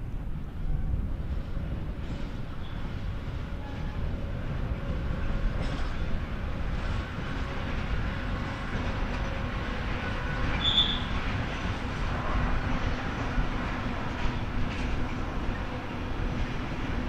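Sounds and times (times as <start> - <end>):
train wheels rumbling: 0.0 - 17.0
high wheel squeal: 10.5 - 11.2.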